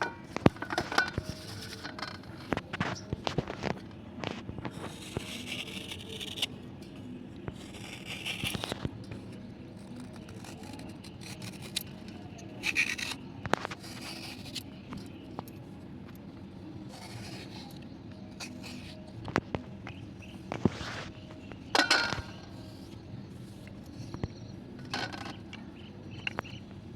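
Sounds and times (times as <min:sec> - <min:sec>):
slate pencil scraping: 0:01.1 - 0:02.3, 0:04.7 - 0:06.6, 0:07.5 - 0:11.9, 0:12.6 - 0:14.6, 0:16.9 - 0:19.0.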